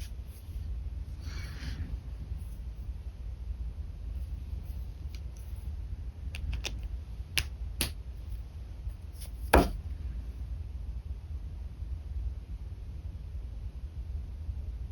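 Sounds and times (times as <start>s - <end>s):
steady low hum: 0.0s - 14.9s
pen clicks and taps: 6.4s - 8.0s, 9.6s - 9.8s
knock on desk: 9.5s - 9.8s.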